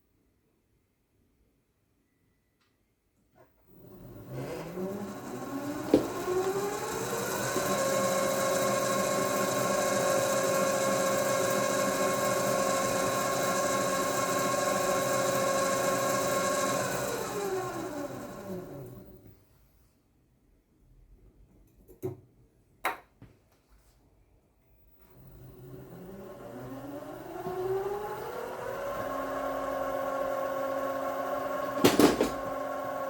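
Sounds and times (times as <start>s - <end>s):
lathe motor whining: 3.7s - 19.2s, 25.0s - 33.0s.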